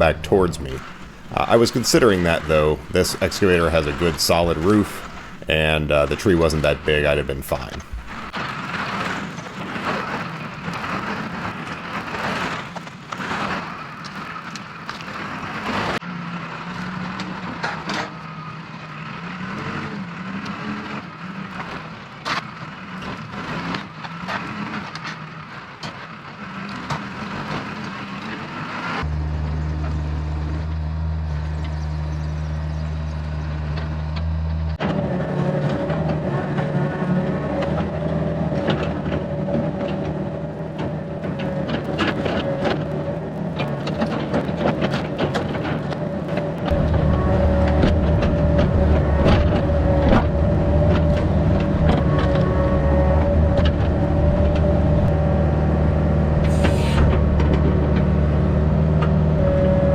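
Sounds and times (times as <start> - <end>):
heavy diesel machinery working: 0.0 - 59.9
cracks and knocks: 38.6 - 52.5.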